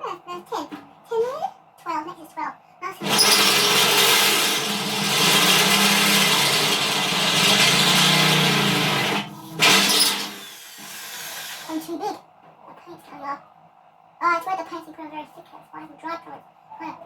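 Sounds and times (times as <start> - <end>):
electric drill boring through metal: 3.0 - 11.8.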